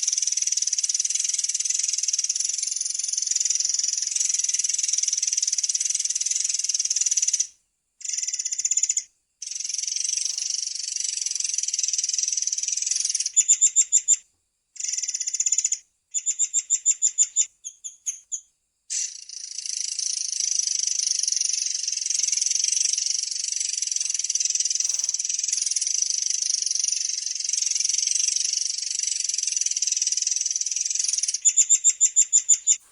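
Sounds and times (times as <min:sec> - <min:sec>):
bird song with rolling trills: 0:14.8 - 0:32.8.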